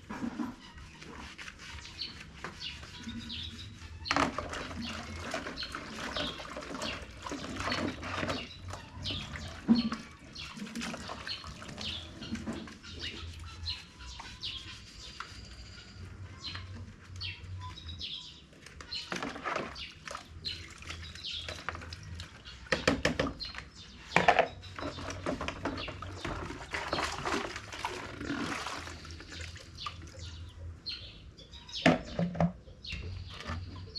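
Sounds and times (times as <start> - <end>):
birds chirping: 0.0 - 33.9
water splashing: 24.9 - 30.3.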